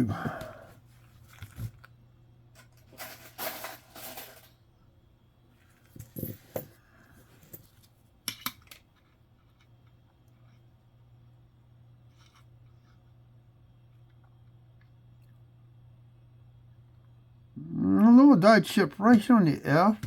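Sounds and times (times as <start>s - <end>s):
coins clinking: 2.8s - 4.6s.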